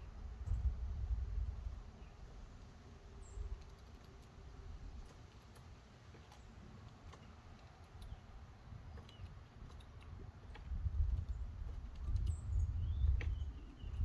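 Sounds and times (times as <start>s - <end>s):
light taps on bird feeder: 13.1s - 13.7s.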